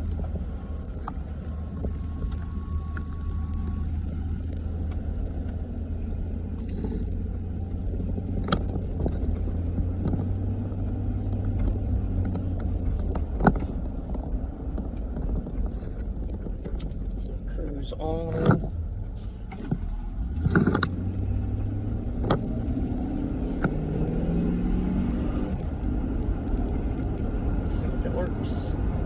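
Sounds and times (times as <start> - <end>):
engine and road drone: 0.0 - 29.0.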